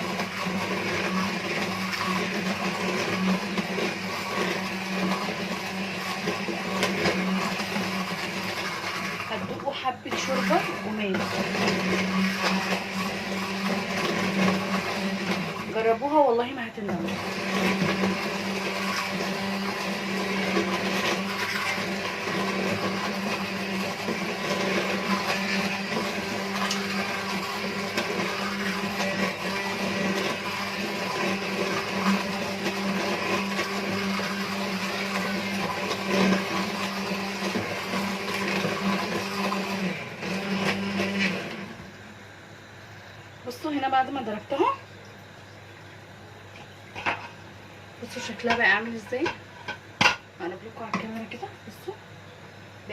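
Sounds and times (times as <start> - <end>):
hand blender running: 0.0 - 42.0.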